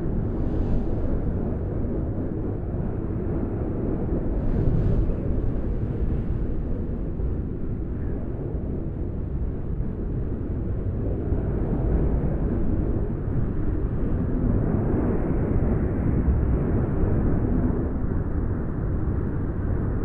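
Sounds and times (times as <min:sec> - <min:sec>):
wind blowing: 0:00.0 - 0:09.6.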